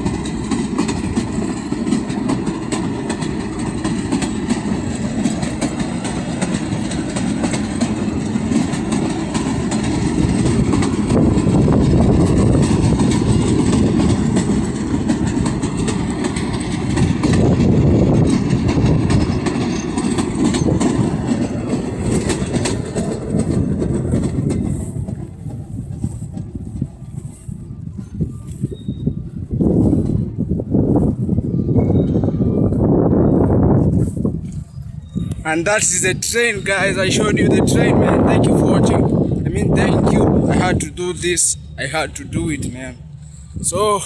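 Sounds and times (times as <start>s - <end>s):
wheels clicking over rails: 0.0s - 27.4s
train passing: 0.0s - 44.0s.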